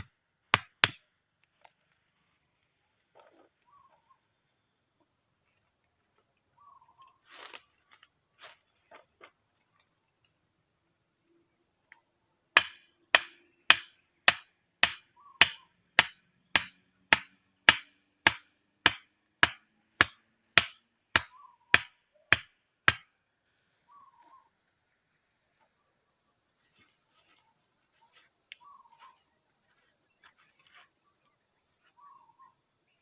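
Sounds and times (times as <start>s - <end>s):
faint high insect-like tone: 0.0s - 33.0s
soft chirps: 2.0s - 8.2s, 21.3s - 22.3s, 23.0s - 33.0s
hand tool striking: 12.6s - 23.1s.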